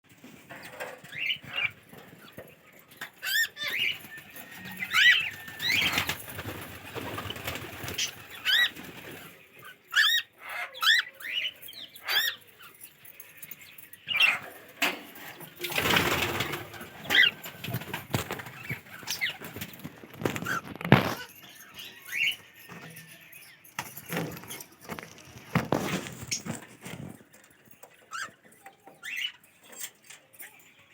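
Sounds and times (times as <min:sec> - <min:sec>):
cockatiel chicks chirping: 0:00.6 - 0:14.8, 0:15.9 - 0:30.9.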